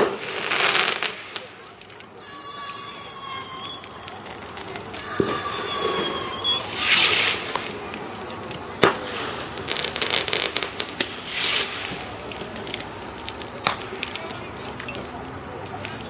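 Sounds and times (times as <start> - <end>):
firework bang: 0.0 - 1.6, 5.0 - 14.2
rapid firework crackling: 0.0 - 16.0
firework whistle: 2.2 - 14.4
hissing whooshes: 5.3 - 14.1.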